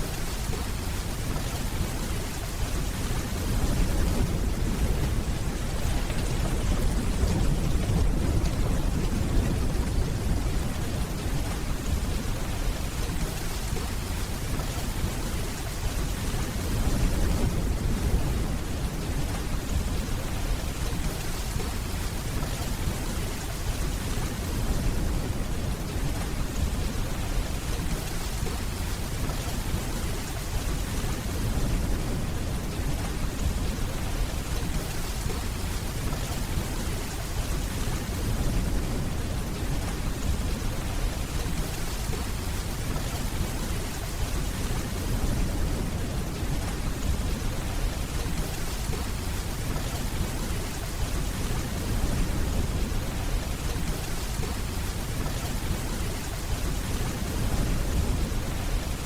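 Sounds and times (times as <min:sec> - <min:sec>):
steady rainfall: 0:00.0 - 0:59.0
distant thunder rumble: 0:03.3 - 0:12.6.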